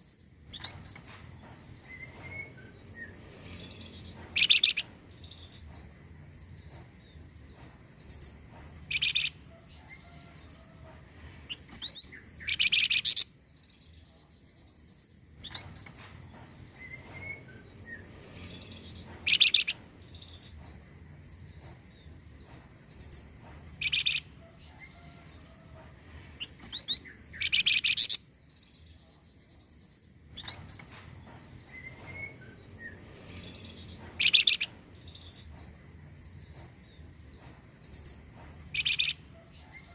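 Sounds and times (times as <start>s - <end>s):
high-pitched bird calls: 4.4s - 4.8s, 11.5s - 13.3s, 19.2s - 19.8s, 26.4s - 28.2s, 33.3s - 34.7s, 38.8s - 39.9s.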